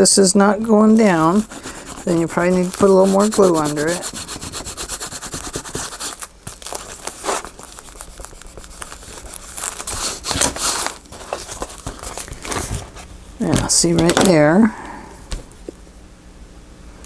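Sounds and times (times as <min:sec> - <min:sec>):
paper rubbing and rustling: 0:00.9 - 0:14.4
paper swishes: 0:01.0 - 0:14.2.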